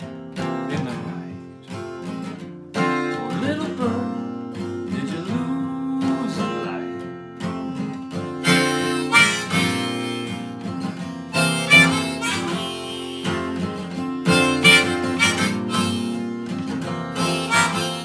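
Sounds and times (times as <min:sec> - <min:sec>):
strummed acoustic guitar: 0:00.0 - 0:18.0
harmonica melody: 0:08.4 - 0:18.0.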